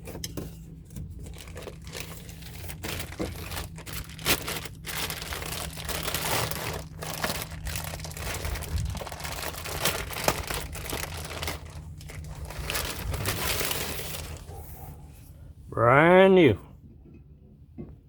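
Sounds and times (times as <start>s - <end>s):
low steady hum: 0.0s - 18.0s
packaging crinkling and tearing: 1.0s - 14.5s.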